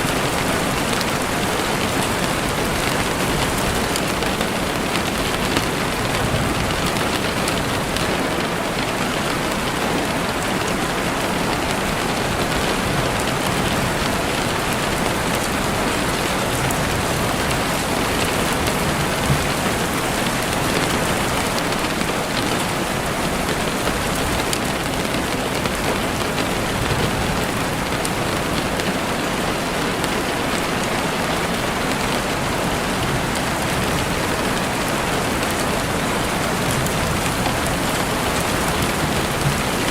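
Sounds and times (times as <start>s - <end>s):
heavy rain on a window: 0.0s - 39.9s.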